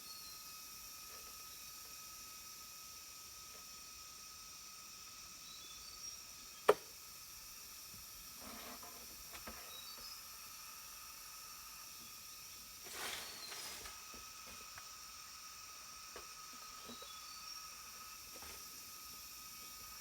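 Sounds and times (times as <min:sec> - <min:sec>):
insect drone: 0:00.0 - 0:20.0
scraping rustles: 0:12.8 - 0:14.7.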